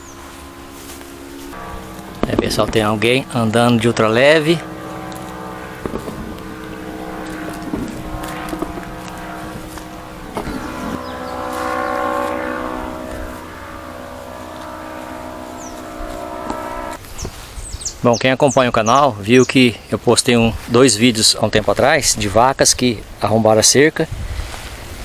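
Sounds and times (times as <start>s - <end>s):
propeller aircraft droning overhead: 0.0s - 18.0s.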